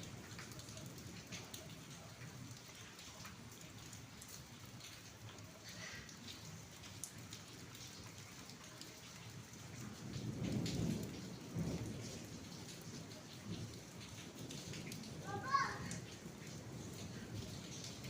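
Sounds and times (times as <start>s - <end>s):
steady rain falling: 0.0s - 18.0s
low rumble of thunder: 9.3s - 18.0s.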